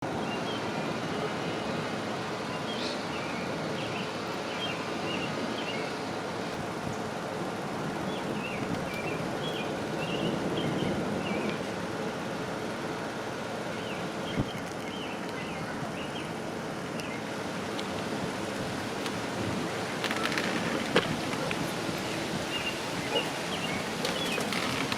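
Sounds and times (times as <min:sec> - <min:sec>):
wind: 0:00.0 - 0:24.9
heavy rain: 0:15.6 - 0:24.9.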